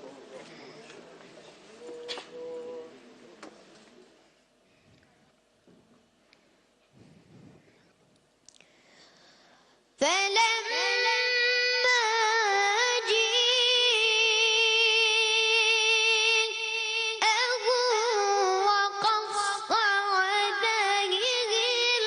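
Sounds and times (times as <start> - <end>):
child reciting melodically: 10.0 - 22.0.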